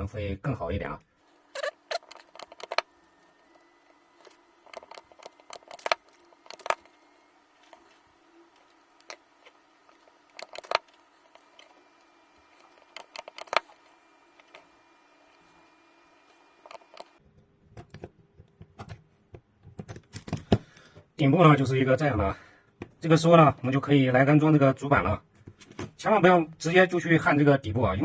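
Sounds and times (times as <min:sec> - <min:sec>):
faint steady hum: 0:00.0 - 0:28.0
metal parts and tools clicking: 0:01.6 - 0:02.9, 0:03.8 - 0:07.0, 0:08.6 - 0:11.7, 0:12.5 - 0:13.8.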